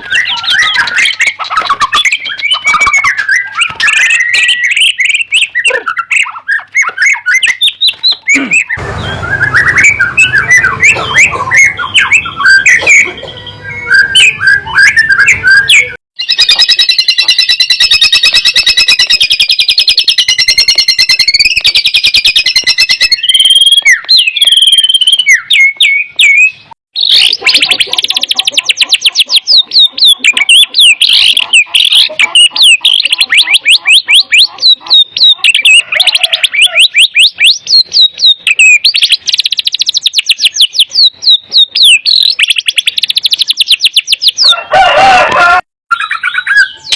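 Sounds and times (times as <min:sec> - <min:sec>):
songbird whistling and trilling: 0:00.0 - 0:44.8, 0:45.9 - 0:46.9.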